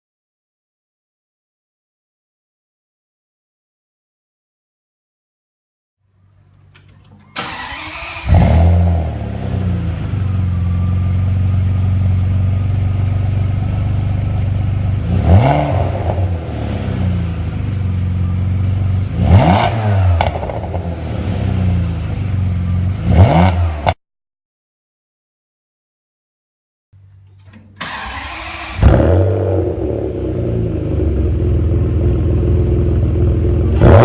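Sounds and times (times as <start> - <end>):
car engine starting and idling: 6.2 - 23.1, 27.0 - 34.0
engine revving: 7.4 - 12.5, 14.9 - 17.7, 18.9 - 22.3, 22.9 - 24.0, 27.8 - 34.0.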